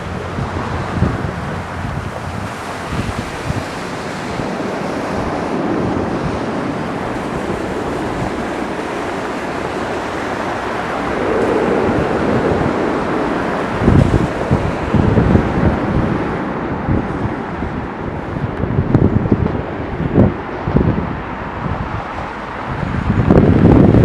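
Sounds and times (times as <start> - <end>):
jet engine roar: 0.0 - 24.0
wind buffeting microphone: 0.0 - 24.0.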